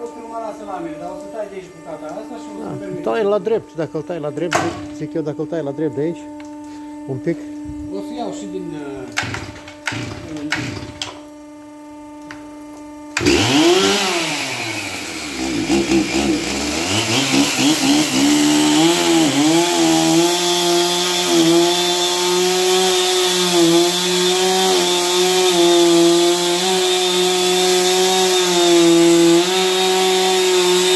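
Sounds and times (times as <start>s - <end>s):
chainsaw revving and cutting log: 9.2s - 11.2s, 13.2s - 30.9s.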